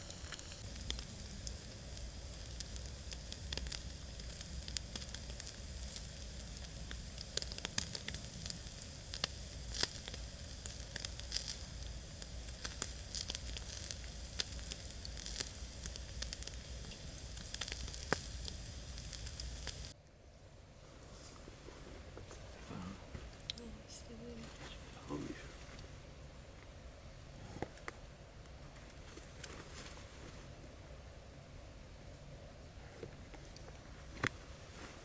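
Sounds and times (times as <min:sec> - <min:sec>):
fire popping and crackling: 0:00.0 - 0:20.0
meat sizzling: 0:00.0 - 0:20.0.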